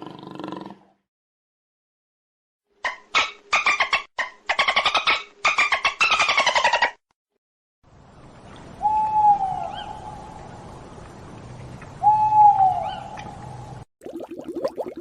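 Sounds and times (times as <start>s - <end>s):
faint outdoor background: 7.8s - 14.5s.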